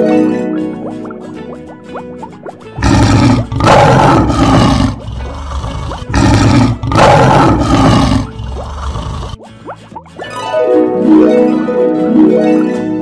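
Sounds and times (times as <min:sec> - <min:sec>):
lion roaring: 0:02.8 - 0:09.4.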